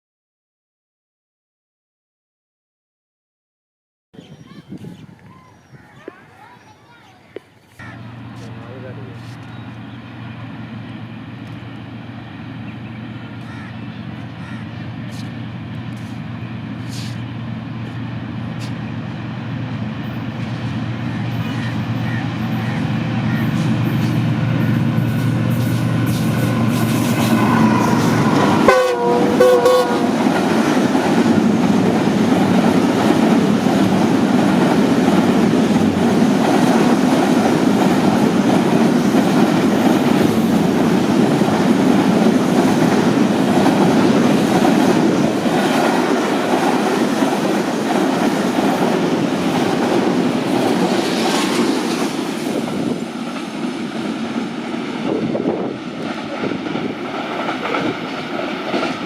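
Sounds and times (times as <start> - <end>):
train wheels rumbling on track: 7.8 - 59.0
train horn blast: 26.0 - 30.4.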